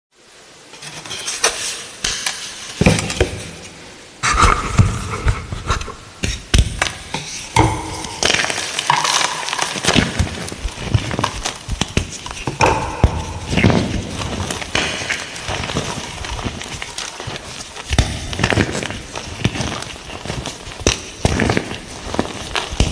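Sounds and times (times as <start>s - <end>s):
chalk blocks crunching: 5.2s - 22.9s.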